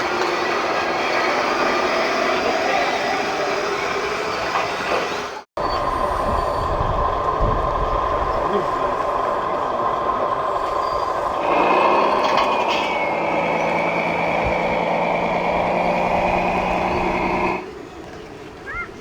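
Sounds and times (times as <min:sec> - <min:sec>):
high whine: 0:05.6 - 0:17.6
model machine mechanical hum: 0:05.7 - 0:18.6.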